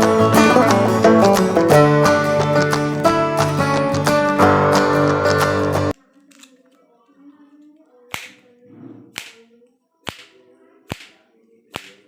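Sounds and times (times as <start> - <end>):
sharp paper snaps: 10.0 - 12.0.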